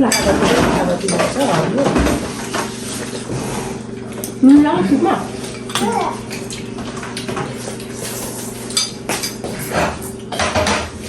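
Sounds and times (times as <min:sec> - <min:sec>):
cutlery clinking against dishes: 0:00.0 - 0:02.2, 0:07.2 - 0:10.9.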